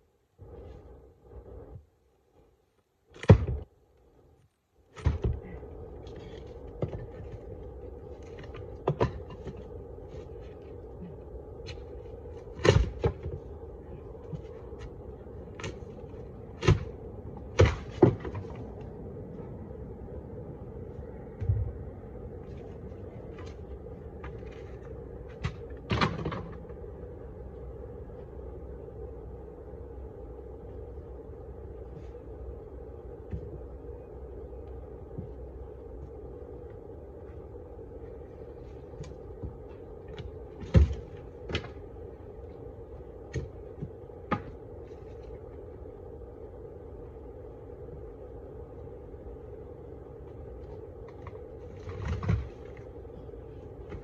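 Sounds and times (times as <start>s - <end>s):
steady hum: 0.0s - 54.0s
sharp knocks and clunks: 3.1s - 3.7s, 4.9s - 5.6s, 8.4s - 9.7s.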